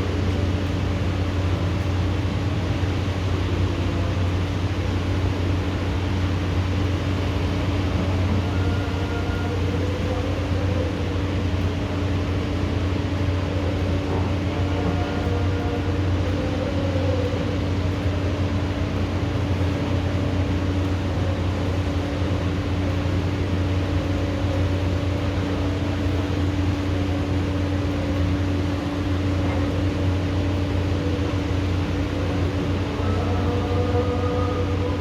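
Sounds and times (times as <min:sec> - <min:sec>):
low machine hum: 0:00.0 - 0:35.0.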